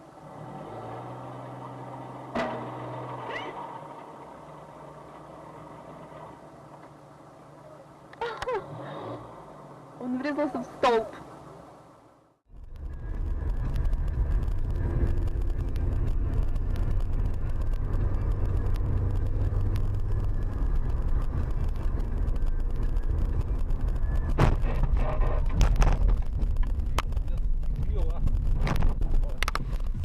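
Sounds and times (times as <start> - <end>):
car road and engine rumble: 0.0 - 30.0
knocks and rattles: 2.3 - 5.3, 12.6 - 30.0
sharp bang: 24.3 - 26.1.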